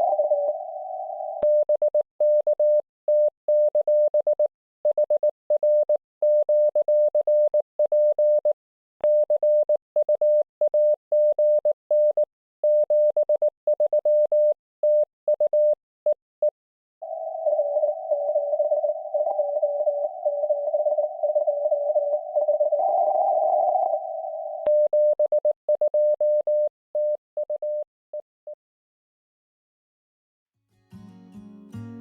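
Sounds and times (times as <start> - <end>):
morse code tone: 0.0 - 1.7, 17.0 - 27.8.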